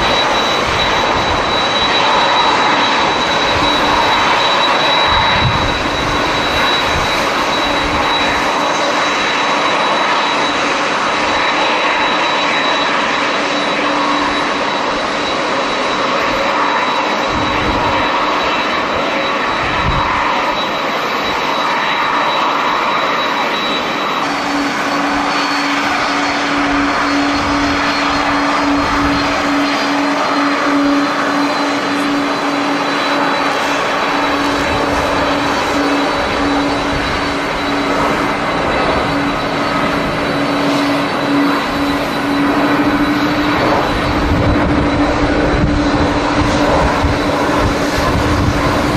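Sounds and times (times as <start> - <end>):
wind buffeting microphone: 0.0 - 8.9, 17.2 - 20.6, 24.5 - 48.9
jet engines whining: 0.0 - 48.9.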